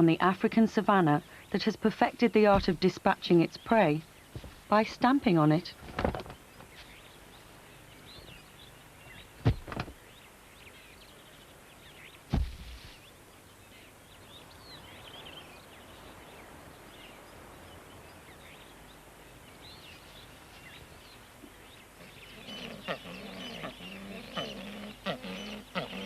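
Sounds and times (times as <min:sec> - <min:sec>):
small birds chirping: 0:00.5 - 0:26.0
sharp thuds: 0:09.4 - 0:10.0, 0:12.3 - 0:13.0.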